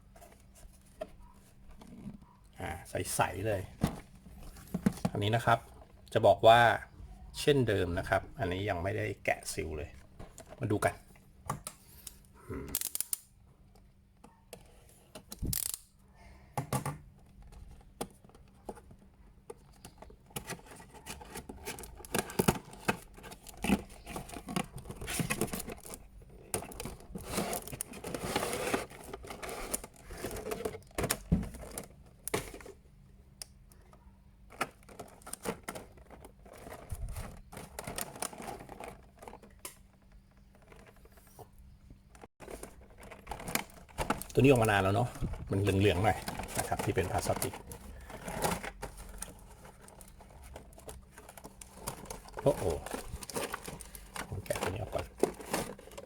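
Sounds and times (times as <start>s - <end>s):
plastic packaging crinkling: 42.4s - 56.0s.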